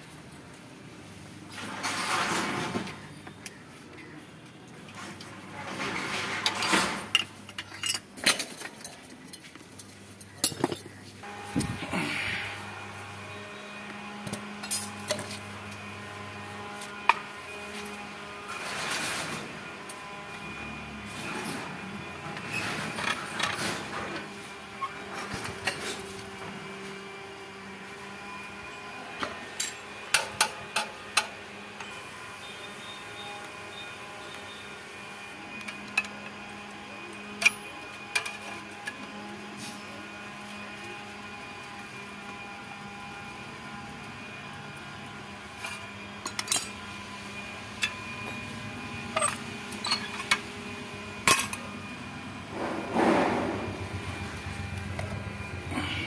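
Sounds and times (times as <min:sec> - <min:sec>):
steady mechanical hum: 0:00.0 - 0:56.0
metal tools clinking and knocking: 0:05.9 - 0:10.9, 0:49.2 - 0:50.4
steady low hum: 0:50.6 - 0:56.0.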